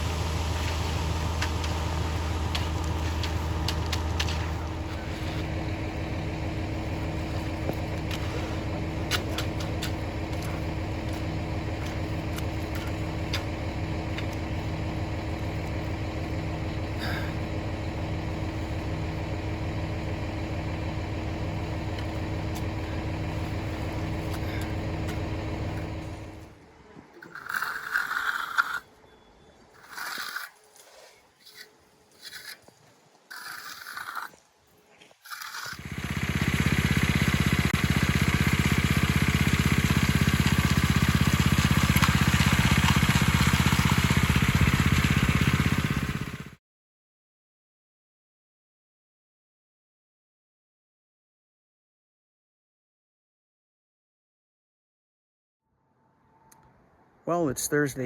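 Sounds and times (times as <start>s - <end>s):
machine engine running: 0.0s - 26.6s, 35.5s - 46.6s.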